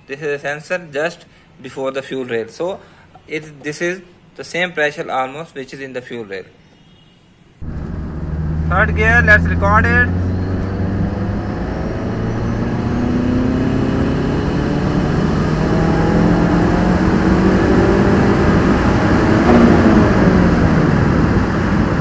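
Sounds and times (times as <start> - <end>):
faint high whine: 7.6 - 15.8
car engine accelerating hard: 7.6 - 22.0.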